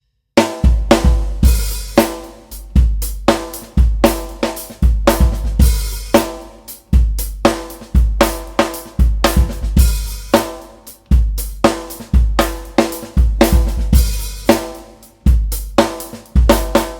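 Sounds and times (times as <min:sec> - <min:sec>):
drum kit playing a groove: 0:00.4 - 0:16.9
deep kick drum: 0:00.7 - 0:01.9, 0:02.6 - 0:04.2, 0:04.8 - 0:06.0, 0:07.0 - 0:07.3, 0:09.0 - 0:10.3, 0:13.2 - 0:14.4.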